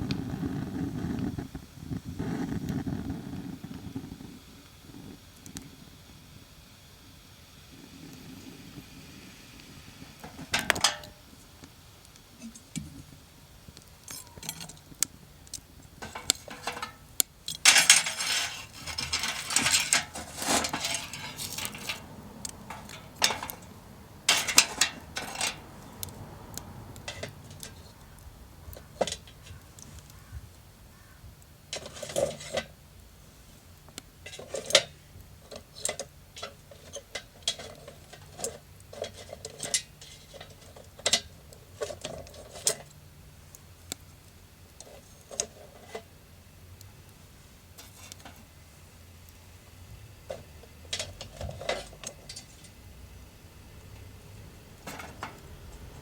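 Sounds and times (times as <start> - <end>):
cookware clattering and scraping: 10.2 - 11.2, 16.0 - 25.8, 27.0 - 27.9, 28.7 - 29.6, 31.7 - 32.7, 34.3 - 42.9, 50.3 - 52.8, 54.9 - 55.5
metal utensils clinking: 10.2 - 11.2, 14.0 - 14.9, 16.0 - 26.2, 26.9 - 27.9, 28.7 - 29.6, 34.3 - 42.9, 50.3 - 52.8, 54.8 - 56.0.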